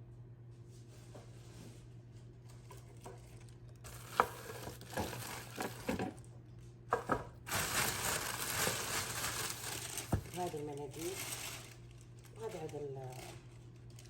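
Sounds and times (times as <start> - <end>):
low steady hum: 0.0 - 14.0
packaging rustling: 3.3 - 6.3, 7.5 - 14.0.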